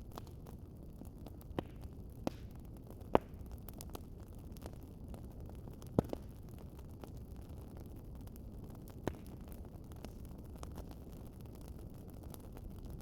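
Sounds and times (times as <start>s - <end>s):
wood fire crackling: 0.0s - 13.0s
sharp pops of fire: 1.4s - 7.2s, 8.8s - 13.0s.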